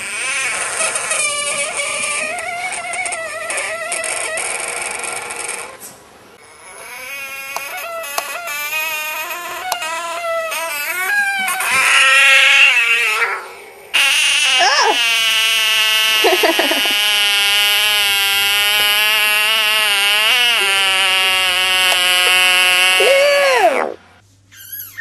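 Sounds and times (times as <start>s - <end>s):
bullfrog distress scream: 6.4s - 24.0s.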